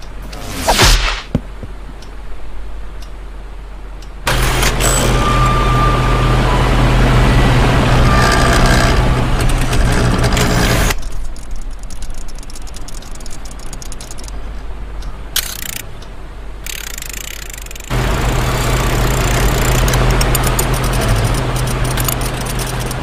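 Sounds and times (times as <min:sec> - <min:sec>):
motor-like drone: 0:04.3 - 0:11.0, 0:17.8 - 0:23.0.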